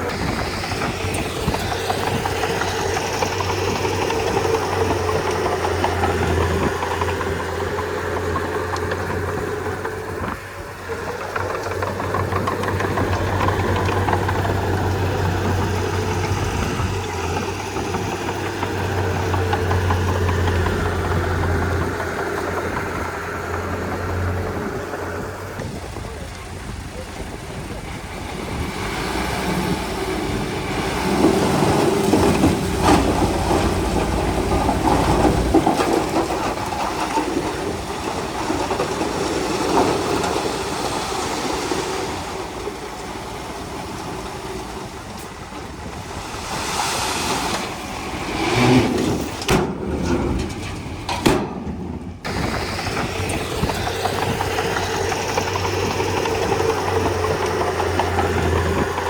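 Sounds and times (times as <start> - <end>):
bulldozer diesel engine under load: 0.0 - 59.0
machine knocks and clanks: 48.6 - 59.0.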